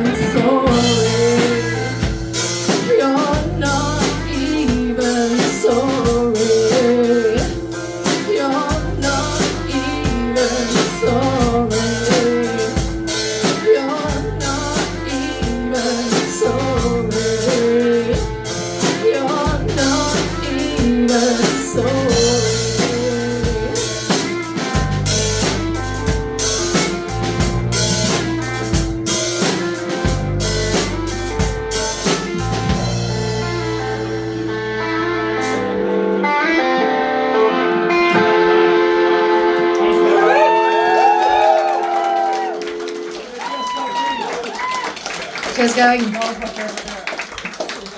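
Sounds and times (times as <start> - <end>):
person singing: 0.0 - 24.8
rock band playing: 0.0 - 47.9.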